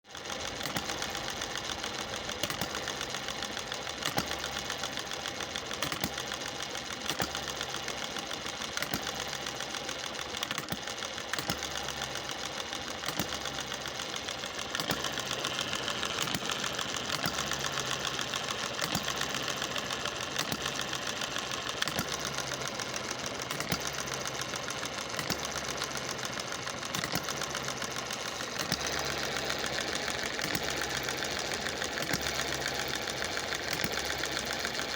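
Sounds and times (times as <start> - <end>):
hit-and-miss engine running: 13.0 - 34.9.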